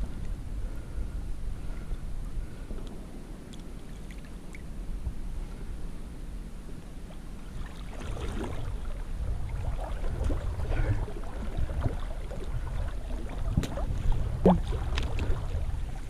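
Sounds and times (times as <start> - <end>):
splashes in shallow water: 7.4 - 16.0.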